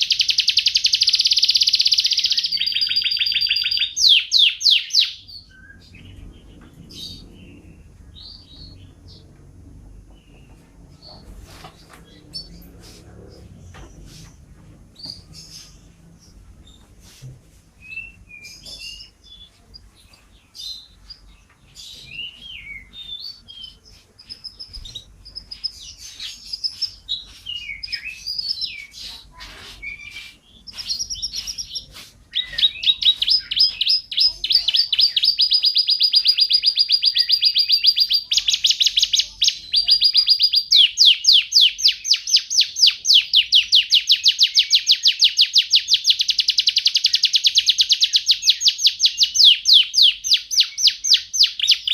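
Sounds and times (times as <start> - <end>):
canary singing: 0.0 - 16.8, 17.8 - 51.9.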